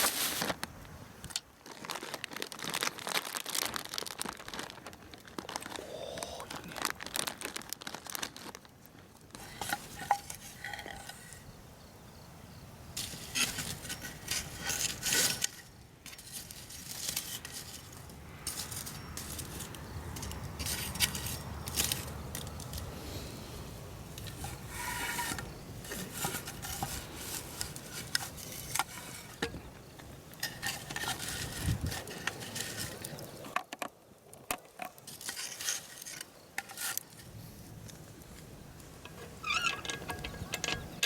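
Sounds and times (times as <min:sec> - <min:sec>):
metal cookware clinking and scraping: 0:09.4 - 0:11.4.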